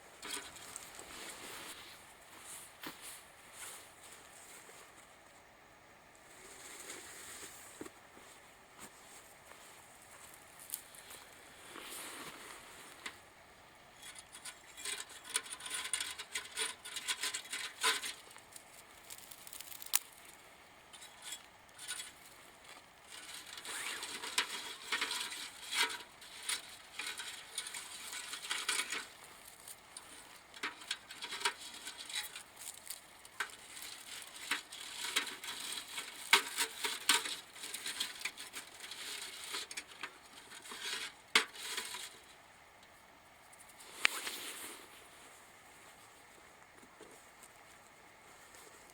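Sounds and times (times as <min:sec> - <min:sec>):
clinks and clicks of handling: 0:20.9 - 0:42.1.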